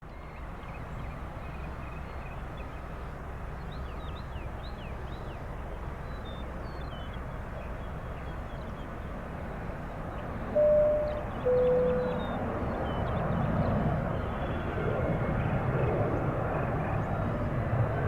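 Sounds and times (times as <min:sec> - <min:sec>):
small birds chirping: 0:10.6 - 0:13.2.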